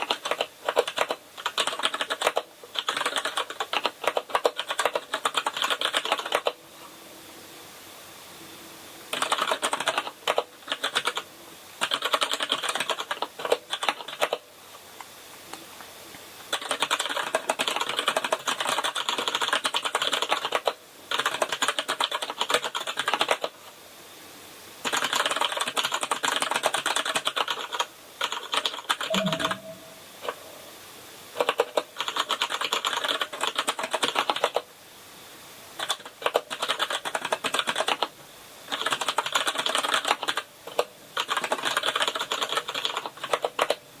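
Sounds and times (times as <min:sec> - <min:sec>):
mechanical keyboard typing: 0:00.0 - 0:06.6, 0:09.1 - 0:11.2, 0:11.8 - 0:14.4, 0:16.5 - 0:23.6, 0:24.8 - 0:29.7, 0:31.4 - 0:34.7, 0:35.8 - 0:38.1, 0:38.7 - 0:43.8.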